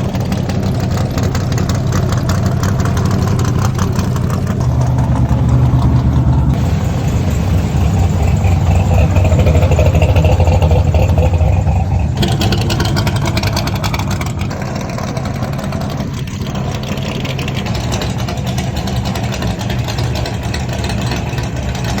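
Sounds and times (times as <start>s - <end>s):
muscle car engines rumbling: 0.0s - 22.0s.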